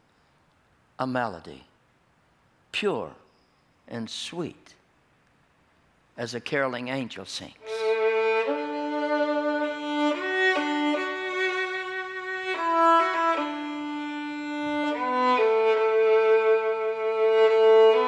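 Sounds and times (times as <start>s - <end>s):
solo violin melody: 7.6s - 18.0s.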